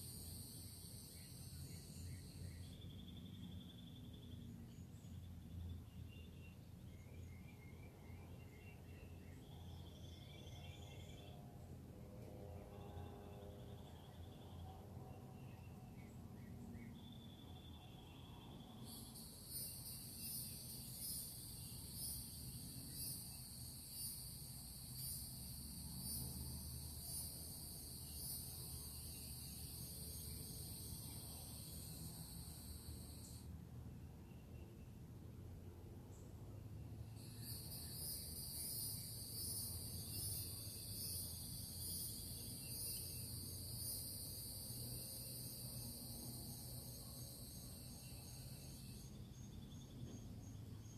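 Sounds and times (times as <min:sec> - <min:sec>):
insects buzzing: 0:00.0 - 0:05.1, 0:16.4 - 0:33.5, 0:37.1 - 0:50.9
low steady hum: 0:00.0 - 0:50.9.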